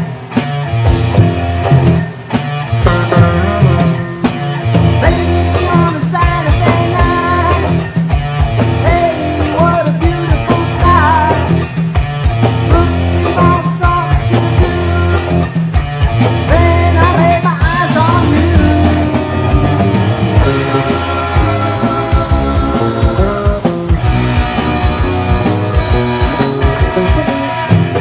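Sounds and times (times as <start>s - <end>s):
rock band playing: 0.0s - 28.0s
wavering electric guitar lead: 0.0s - 28.0s.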